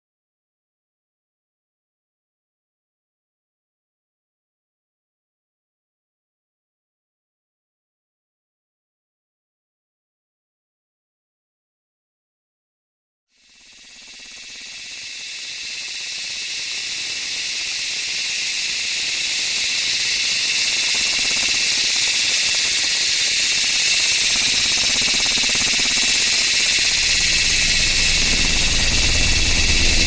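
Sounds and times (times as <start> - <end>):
steady hiss: 14.0 - 30.0
low rumble: 24.4 - 30.0.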